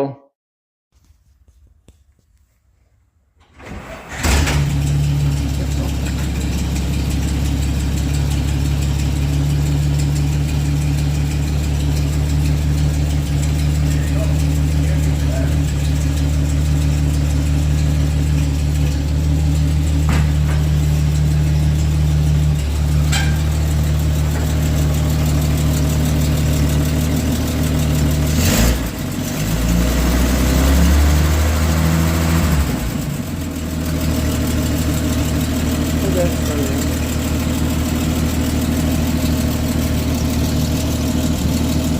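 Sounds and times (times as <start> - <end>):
truck engine idling: 3.8 - 41.9.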